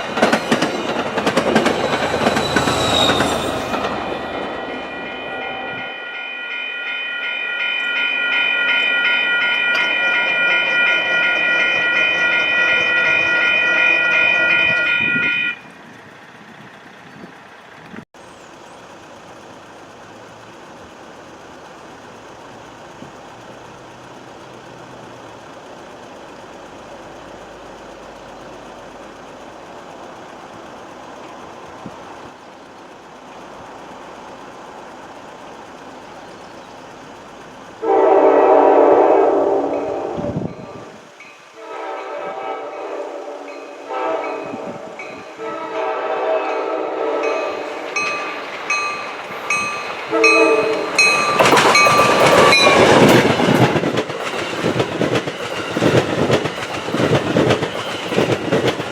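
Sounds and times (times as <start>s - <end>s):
faint train rumble: 0.0s - 58.9s
train air horn: 37.8s - 47.8s, 50.1s - 51.3s.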